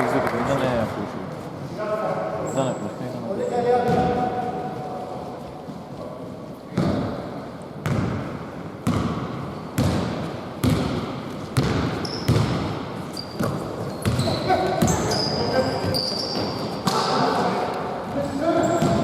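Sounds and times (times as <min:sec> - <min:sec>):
basketball bouncing on hard court: 0:03.8 - 0:04.2, 0:06.8 - 0:07.1, 0:07.8 - 0:15.3.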